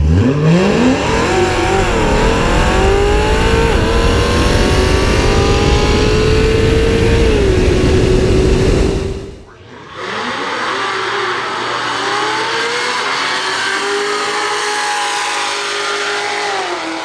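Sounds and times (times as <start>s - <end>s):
car engine at full throttle: 0.0s - 17.0s
wind and tyre noise: 0.0s - 17.0s.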